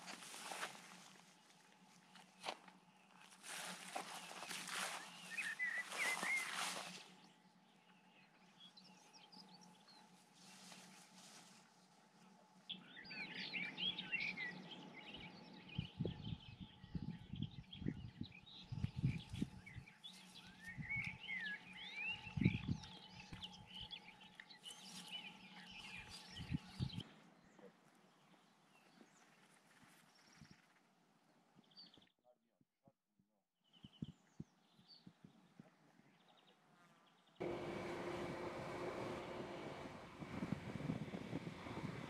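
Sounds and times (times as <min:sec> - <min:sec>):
songbirds twittering: 0:00.2 - 0:10.8, 0:12.6 - 0:30.7.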